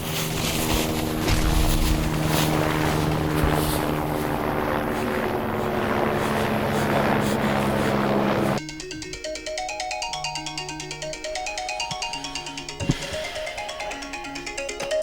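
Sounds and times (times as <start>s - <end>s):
helicopter engine and rotor: 0.0s - 8.6s.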